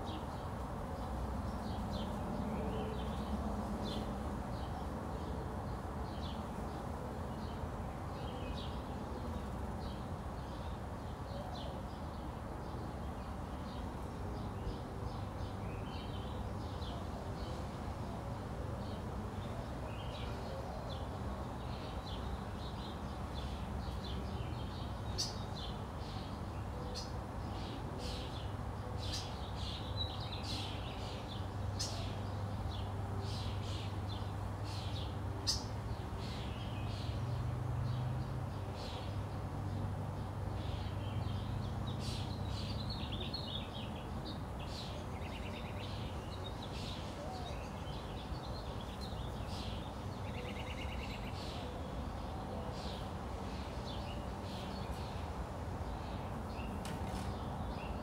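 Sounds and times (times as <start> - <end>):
small birds chirping: 18.9 - 58.0.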